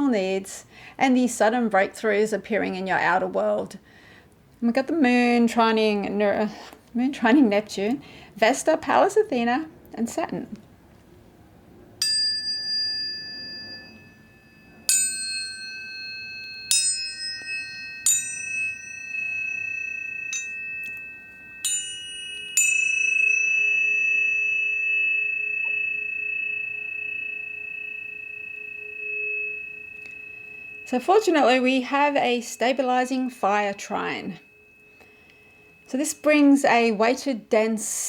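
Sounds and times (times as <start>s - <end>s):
tuning forks struck and ringing: 12.0s - 37.7s.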